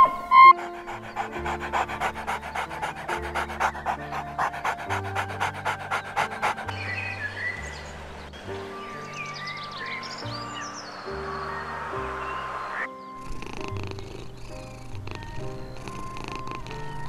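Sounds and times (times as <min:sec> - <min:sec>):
background music: 0:00.0 - 0:17.0
dog panting rapidly: 0:00.3 - 0:07.1.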